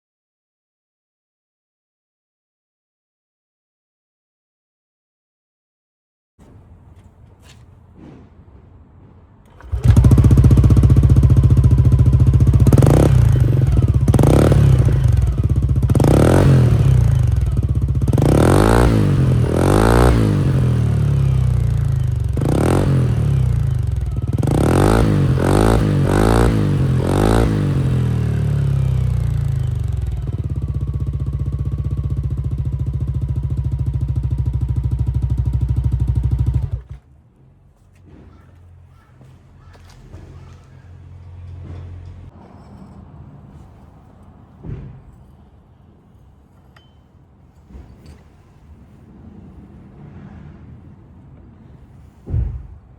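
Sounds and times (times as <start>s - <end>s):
scooter engine idling: 9.4s - 37.0s.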